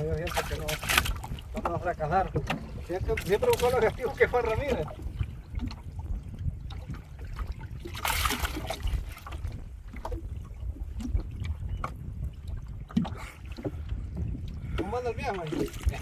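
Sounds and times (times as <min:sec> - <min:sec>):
steady low rumble: 0:00.0 - 0:16.0
water sloshing around boat: 0:00.0 - 0:16.0
water splash: 0:06.9 - 0:10.2.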